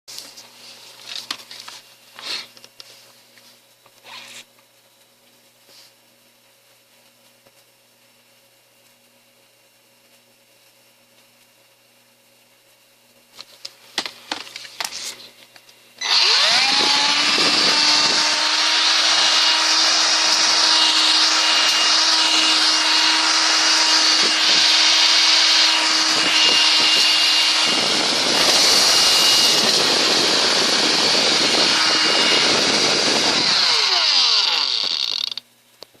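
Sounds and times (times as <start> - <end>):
vacuum motor whining: 16.0 - 35.4.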